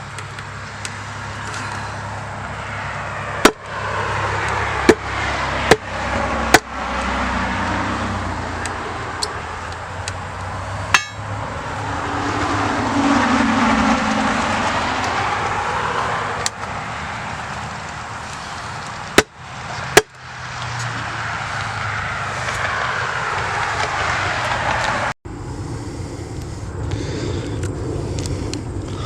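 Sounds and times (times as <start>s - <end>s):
road traffic noise: 0.0s - 29.0s
hammer blows: 10.9s - 11.3s.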